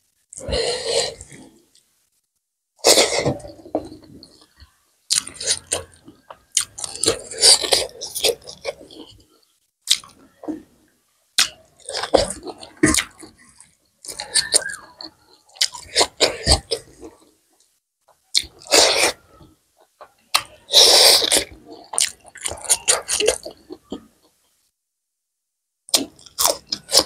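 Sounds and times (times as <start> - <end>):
chewing and mouth smacking: 2.9 - 9.2, 9.8 - 10.6, 11.4 - 17.2, 18.1 - 19.2, 19.8 - 24.3.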